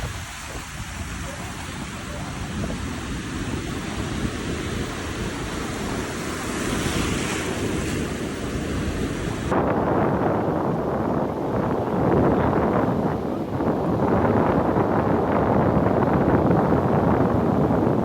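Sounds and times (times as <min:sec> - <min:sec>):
sea waves breaking on beach: 0:00.0 - 0:10.0
wind buffeting microphone: 0:00.0 - 0:18.0.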